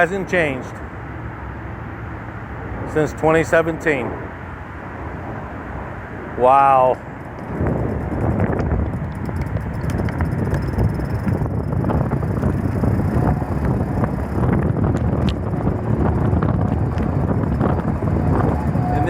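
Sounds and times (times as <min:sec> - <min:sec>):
wind buffeting microphone: 0:07.0 - 0:19.0.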